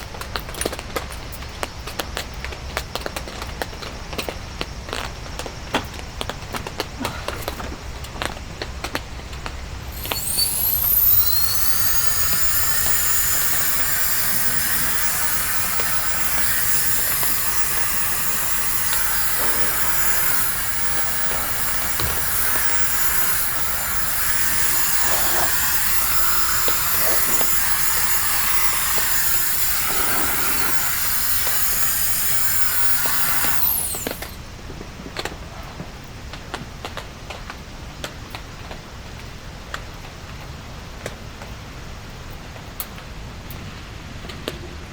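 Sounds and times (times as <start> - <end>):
electric air blower whining: 9.8 - 34.4.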